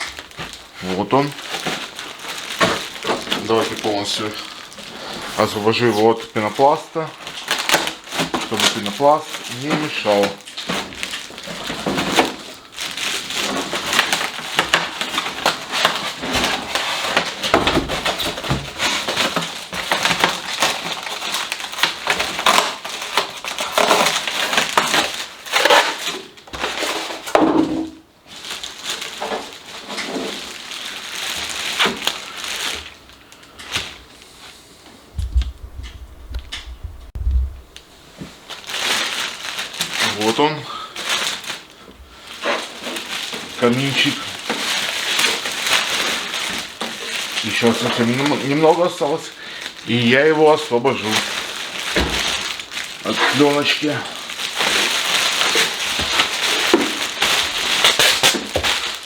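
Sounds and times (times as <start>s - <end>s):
polystyrene foam crunching: 0.0s - 34.6s, 37.5s - 59.0s
low rumble of handling: 35.1s - 38.5s.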